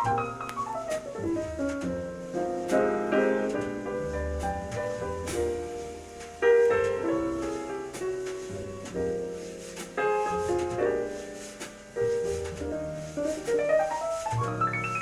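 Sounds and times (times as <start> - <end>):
piano music from vinyl record: 0.0 - 15.0.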